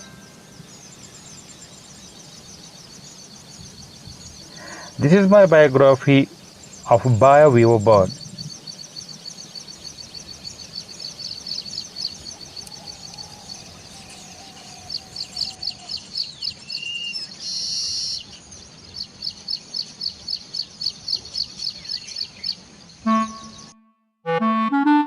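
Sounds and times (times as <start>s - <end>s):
birds chirping rapidly: 0.0s - 23.8s
bird buzzy wheeze: 4.5s - 5.0s.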